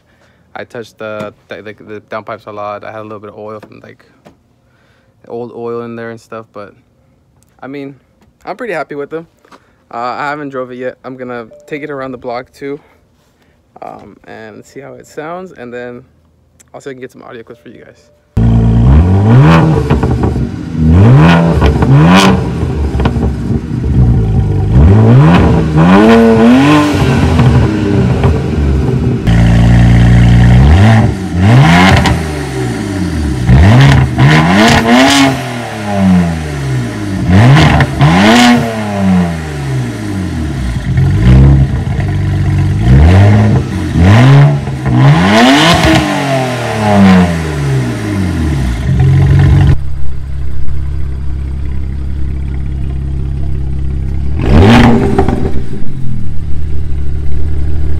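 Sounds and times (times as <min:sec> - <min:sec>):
loud car engine revving: 0:18.4 - 0:49.9, 0:50.5 - 0:57.9.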